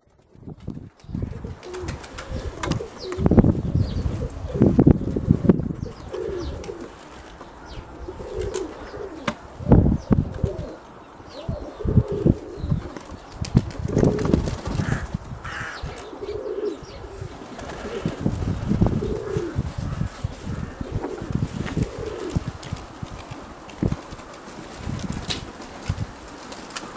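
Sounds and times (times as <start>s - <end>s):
wings flapping: 0.0s - 5.3s, 6.1s - 7.5s, 8.3s - 9.5s, 12.1s - 15.8s, 17.3s - 26.9s
wind buffeting microphone: 0.0s - 26.9s
pigeons cooing: 1.2s - 24.7s.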